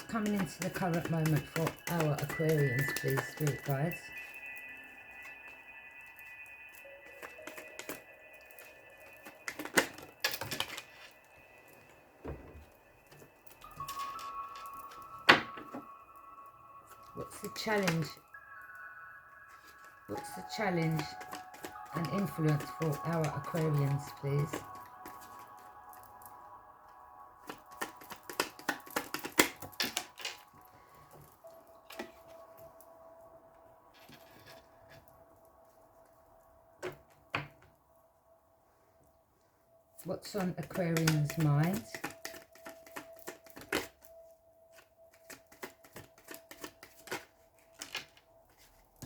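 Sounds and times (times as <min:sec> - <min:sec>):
cards clicking and snapping: 0:00.0 - 0:03.7, 0:20.8 - 0:25.6, 0:27.4 - 0:30.4, 0:40.7 - 0:44.0, 0:44.7 - 0:48.2
faint steady tone: 0:00.0 - 0:29.1, 0:29.8 - 0:49.0.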